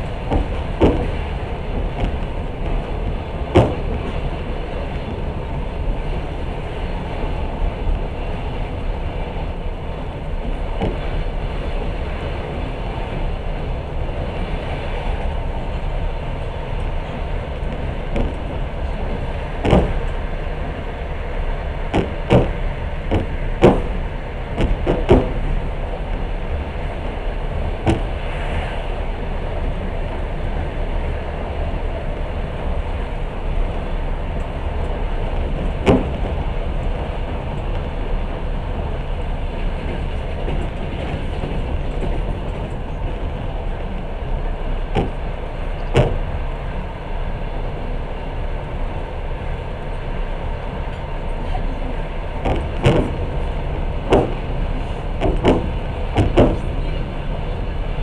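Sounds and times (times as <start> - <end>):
train wheels rumbling on rails: 0.0 - 58.0
sharp knocks: 0.3 - 2.8, 3.5 - 4.2, 19.6 - 20.2, 21.9 - 24.0, 24.6 - 25.5, 27.8 - 28.2, 35.8 - 36.4, 44.9 - 45.2, 45.9 - 46.3, 52.4 - 53.4, 54.1 - 54.5, 55.2 - 56.8.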